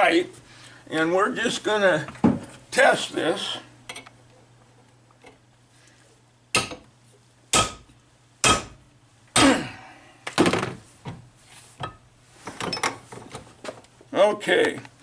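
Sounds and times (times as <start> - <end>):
hammer striking metal: 6.5 - 6.8, 7.5 - 8.8.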